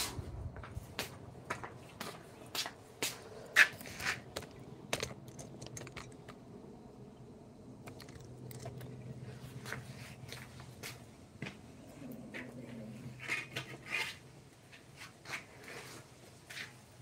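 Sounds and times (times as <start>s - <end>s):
faint low hum: 0.0s - 14.6s
clicks and knocks on wood: 3.6s - 6.4s.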